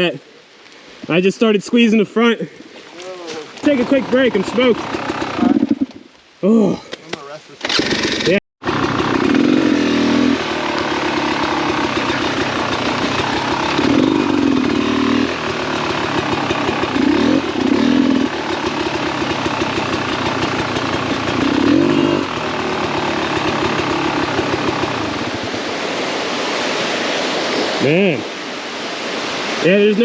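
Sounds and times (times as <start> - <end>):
dirt bike engine idling: 3.0 - 6.1, 7.8 - 25.8.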